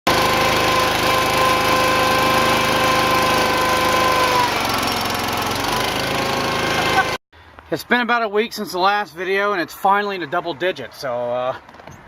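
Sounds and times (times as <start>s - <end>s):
small engine running: 0.1s - 7.2s.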